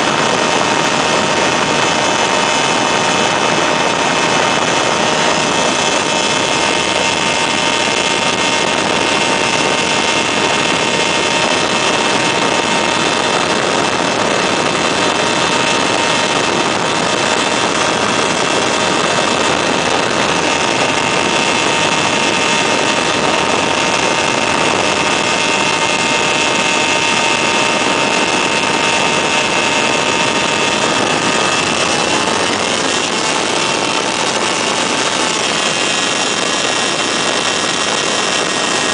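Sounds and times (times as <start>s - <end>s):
ultralight engine and propeller: 0.0s - 38.9s.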